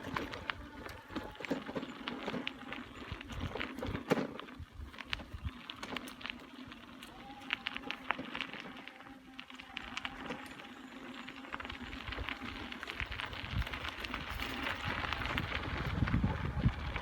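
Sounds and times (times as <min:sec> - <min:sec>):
bicycle tyres crunching on trail: 0:00.0 - 0:17.0
wind rumble on microphone: 0:02.8 - 0:05.8, 0:11.6 - 0:17.0.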